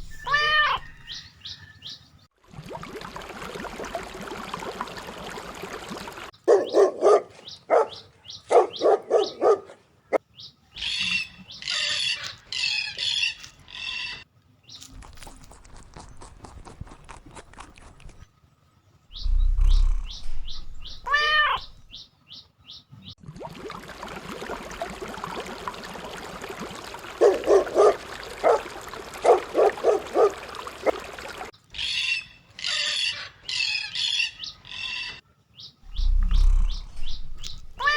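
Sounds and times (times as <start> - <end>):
birds chirping: 0.0 - 2.3, 5.5 - 18.3, 19.0 - 23.2, 26.1 - 37.9
dog barking: 6.4 - 9.8, 27.2 - 31.2.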